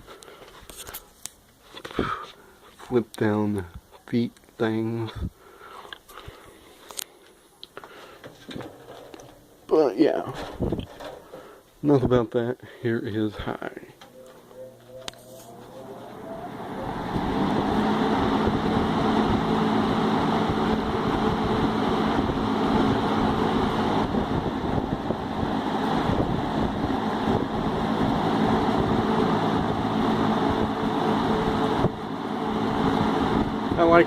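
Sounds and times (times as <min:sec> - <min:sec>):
low motor hum: 0:14.0 - 0:34.0
box fan air rushing: 0:15.2 - 0:34.0.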